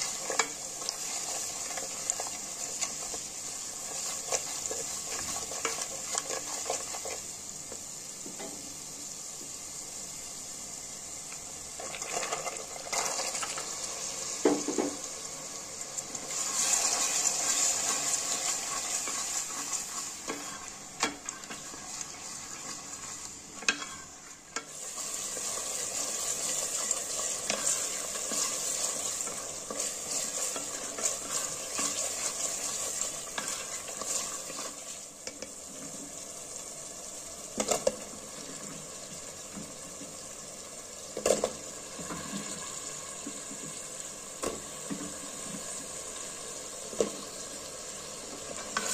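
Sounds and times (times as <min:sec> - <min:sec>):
spatula scraping and tapping pot: 0:00.0 - 0:08.6, 0:16.3 - 0:35.9, 0:37.6 - 0:38.1, 0:48.3 - 0:48.9
spices sizzling in oil: 0:00.0 - 0:48.9.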